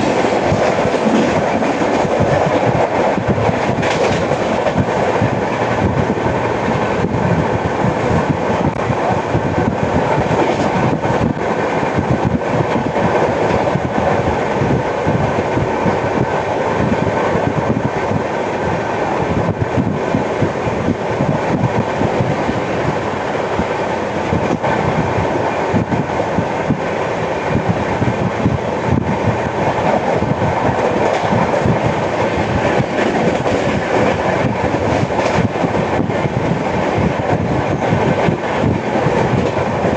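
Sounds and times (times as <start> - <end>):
knocks of train wheels: 0.0 - 7.2, 9.4 - 14.1, 27.5 - 39.9
train wheels rumbling on rails: 0.0 - 39.9.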